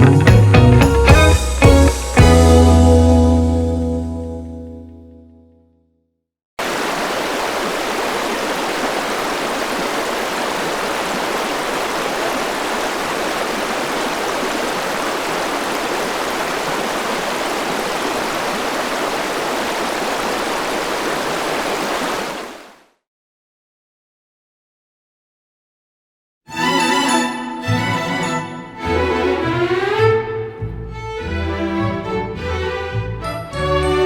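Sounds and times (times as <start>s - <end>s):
running water rushing: 6.6s - 22.8s.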